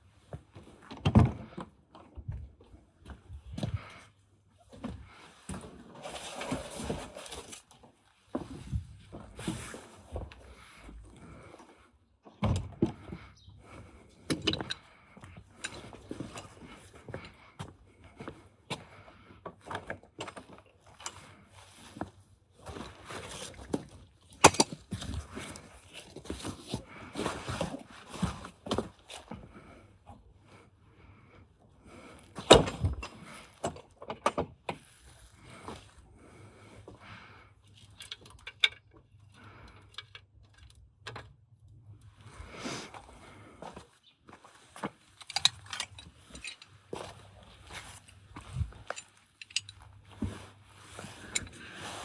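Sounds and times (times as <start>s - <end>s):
metallic clinks and scraping of tools: 45.1s - 50.2s, 51.0s - 51.8s.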